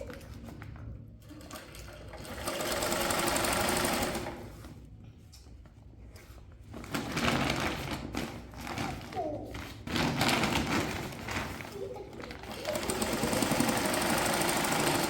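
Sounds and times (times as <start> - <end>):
sewing machine stitching: 1.2 - 4.5, 12.4 - 15.0.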